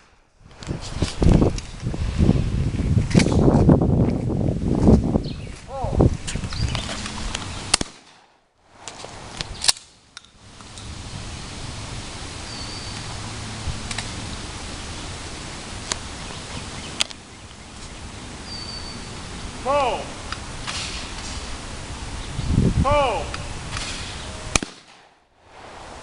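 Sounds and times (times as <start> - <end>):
steady outdoor hiss: 0.0 - 26.0
shotgun shots: 7.7 - 8.4, 23.7 - 25.2
fainter sharp cracks: 7.7 - 10.8, 23.2 - 25.2.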